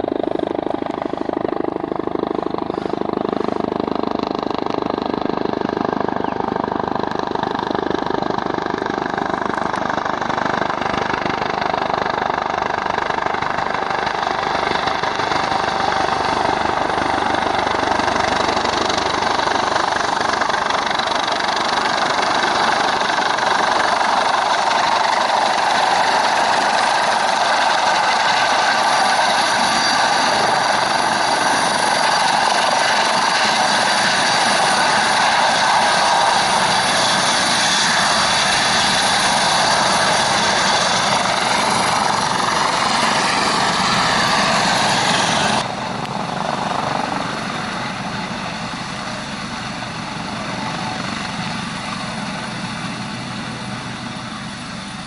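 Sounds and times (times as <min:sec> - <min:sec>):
helicopter rotor noise: 0:00.0 - 0:55.0
helicopter turbine whine: 0:00.0 - 0:55.0.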